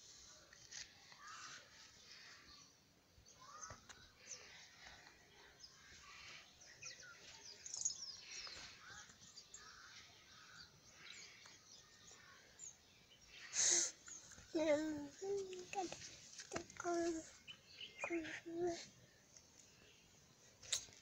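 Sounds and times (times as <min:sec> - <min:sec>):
background hiss: 0:00.0 - 0:21.0
faint birds chirping: 0:00.0 - 0:21.0.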